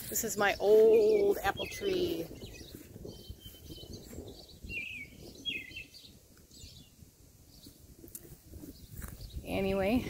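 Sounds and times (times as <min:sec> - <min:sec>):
bird chirping: 0:00.2 - 0:07.9.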